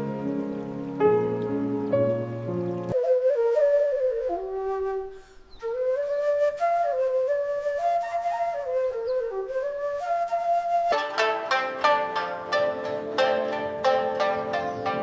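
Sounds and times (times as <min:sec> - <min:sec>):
lower accompaniment: 0:00.0 - 0:15.0
slow solo flute melody: 0:02.5 - 0:11.8.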